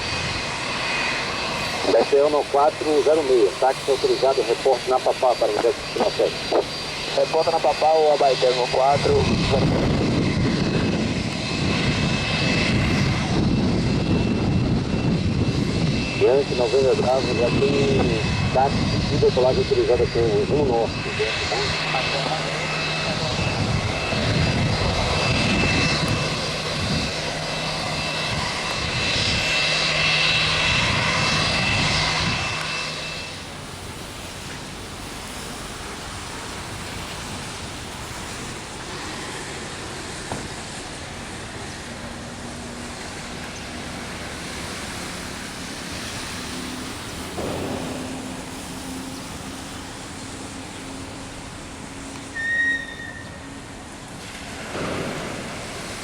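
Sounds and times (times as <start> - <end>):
aircraft engines whining: 0.0 - 56.0
rain hissing: 33.3 - 40.2, 42.8 - 52.4.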